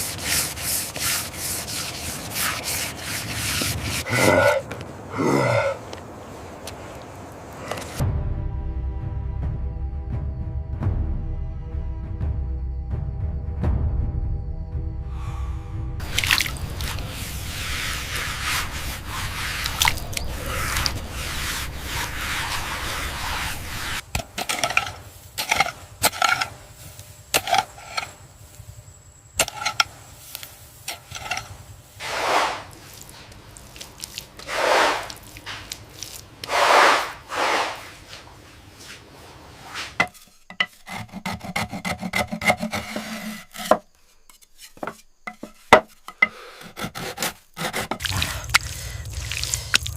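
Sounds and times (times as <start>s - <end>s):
scraping strokes on hard surface: 0.0s - 4.6s, 16.5s - 28.2s, 29.4s - 48.7s.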